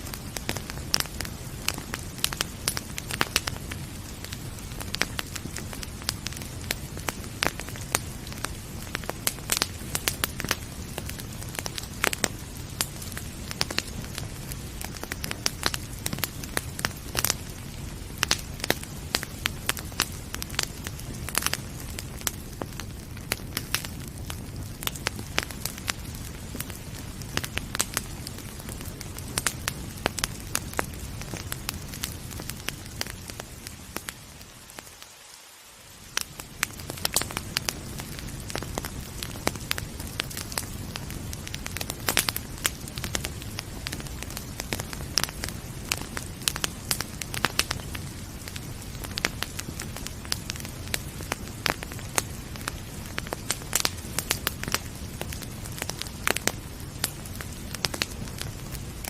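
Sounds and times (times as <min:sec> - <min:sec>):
rain hissing: 0:00.0 - 0:59.0
wood fire crackling and popping: 0:00.0 - 0:59.0.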